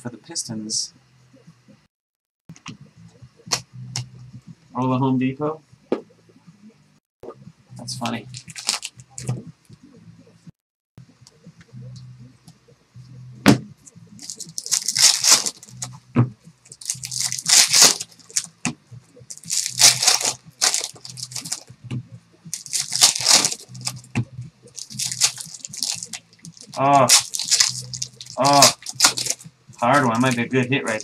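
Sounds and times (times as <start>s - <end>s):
wrappers torn and crinkled: 8.0s - 9.0s, 14.2s - 15.9s, 16.7s - 18.5s, 19.3s - 21.6s, 22.6s - 24.0s, 24.8s - 31.0s.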